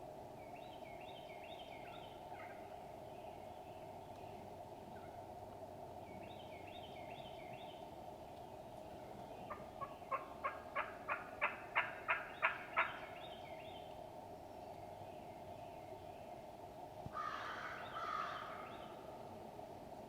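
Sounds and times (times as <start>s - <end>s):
steady background noise: 0.0s - 20.0s
turkey yelping: 9.8s - 13.0s.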